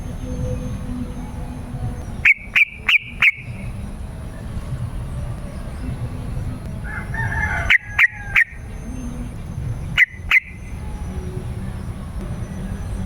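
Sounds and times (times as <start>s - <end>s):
low background rumble: 0.0s - 13.0s
bird calling: 2.0s - 3.8s, 6.9s - 11.6s.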